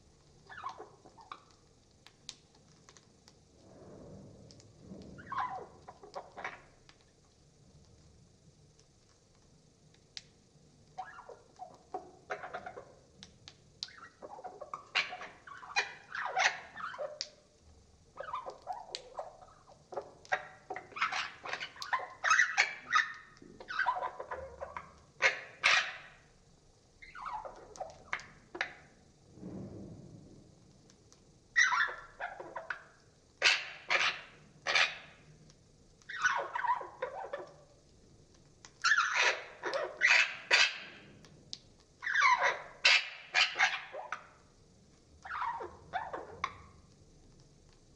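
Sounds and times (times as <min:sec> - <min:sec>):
harsh squawks: 0:31.6 - 0:32.8, 0:33.4 - 0:35.1.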